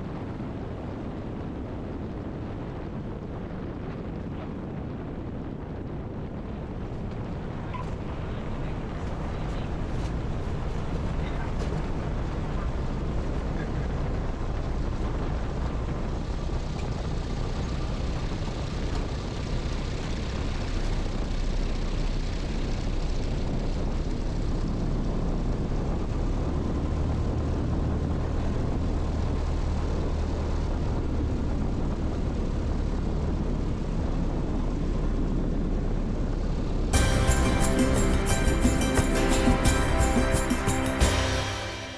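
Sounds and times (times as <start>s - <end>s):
airplane engine and propeller: 1.8s - 34.1s.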